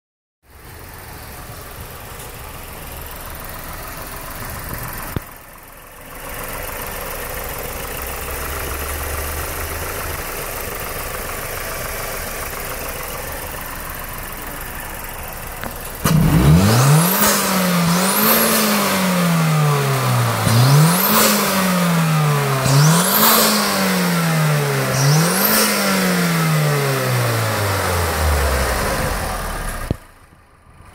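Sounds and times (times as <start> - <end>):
car engine idling and revving: 0.4 - 30.9.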